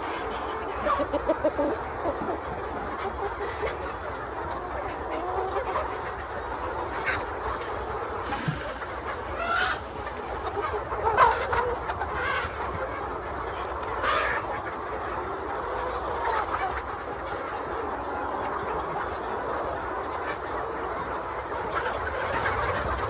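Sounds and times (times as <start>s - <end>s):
chickens clucking: 0.0s - 23.0s
chicken squawks: 6.9s - 14.5s.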